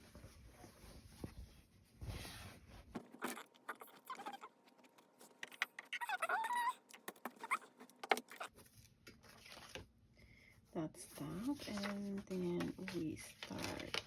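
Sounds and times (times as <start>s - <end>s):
fabric and paper being moved: 0.0s - 3.1s, 11.0s - 14.0s.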